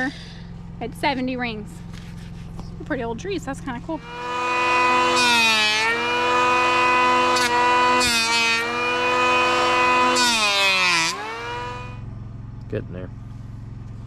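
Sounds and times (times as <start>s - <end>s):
chainsaw cutting wood: 4.0s - 12.0s.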